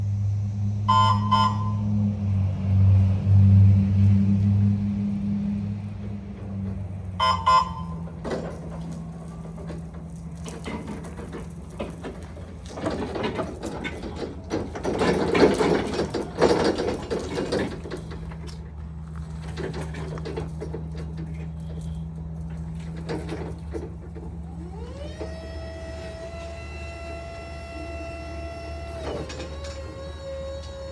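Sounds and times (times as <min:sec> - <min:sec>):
reach truck humming: 0:00.0 - 0:30.9
clicks and clattering: 0:05.8 - 0:24.4
electric motor whine: 0:24.4 - 0:30.9.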